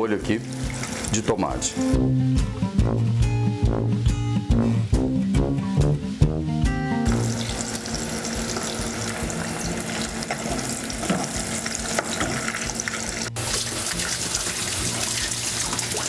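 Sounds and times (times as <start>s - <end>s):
meatballs sizzling in a pan: 4.9s - 16.0s.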